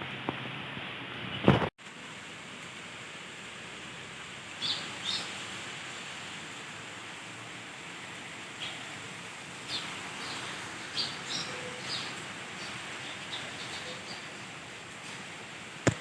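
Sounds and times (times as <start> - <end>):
steady outdoor hiss: 0.0 - 16.0
birds chirping: 4.5 - 6.4, 8.1 - 14.9.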